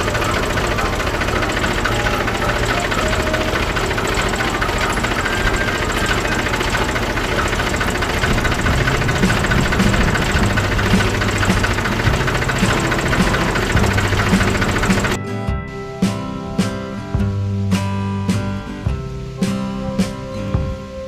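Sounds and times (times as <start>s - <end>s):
tractor engine knocking idle: 0.0s - 15.2s.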